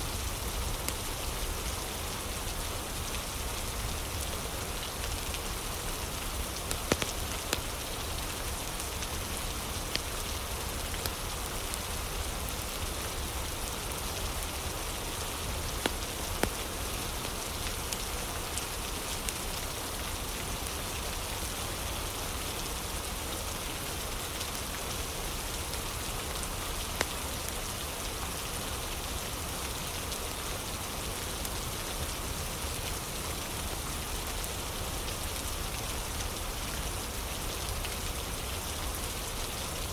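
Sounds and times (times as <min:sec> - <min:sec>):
steady rain falling: 0:00.0 - 0:39.9
fire crackling pops: 0:06.5 - 0:07.9, 0:09.8 - 0:10.2, 0:10.9 - 0:11.6, 0:15.7 - 0:16.9.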